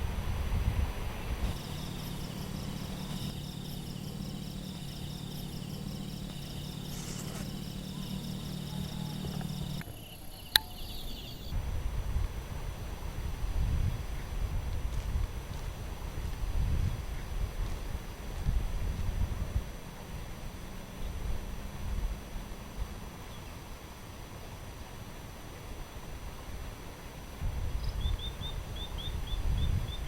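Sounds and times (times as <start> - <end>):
wind rumbling on microphone: 0.0 - 8.5, 11.2 - 23.2, 26.0 - 30.0
steady low hum: 0.0 - 14.0
insects chirping: 1.4 - 11.6, 27.8 - 30.0
sharp click: 10.5 - 11.0.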